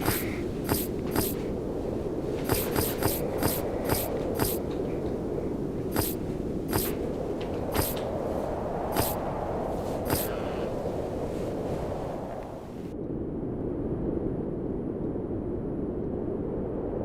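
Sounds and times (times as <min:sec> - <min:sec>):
sharp mechanical clicks: 0:00.0 - 0:01.5, 0:02.4 - 0:04.8, 0:05.9 - 0:07.0, 0:07.7 - 0:08.0, 0:08.9 - 0:09.2, 0:10.1 - 0:10.4
steady low rumble: 0:00.0 - 0:16.9.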